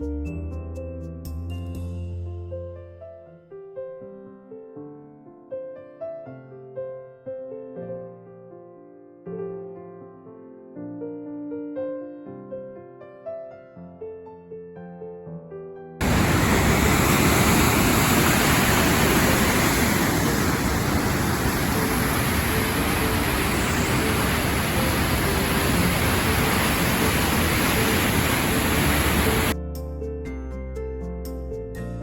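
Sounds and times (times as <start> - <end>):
waterfall rushing: 16.0 - 29.6.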